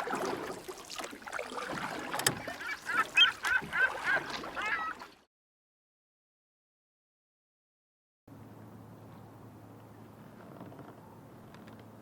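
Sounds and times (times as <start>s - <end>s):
bird calling: 2.3s - 5.1s.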